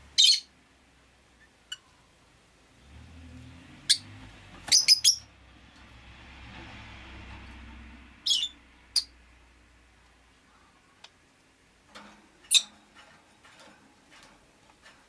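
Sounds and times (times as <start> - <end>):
lovebirds chirping: 0.0 - 0.5, 4.7 - 5.3, 8.2 - 9.1.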